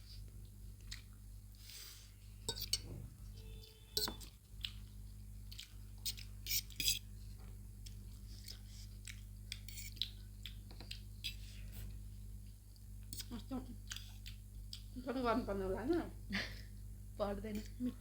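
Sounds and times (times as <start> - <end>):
forks scraping on plates: 6.5 - 7.0.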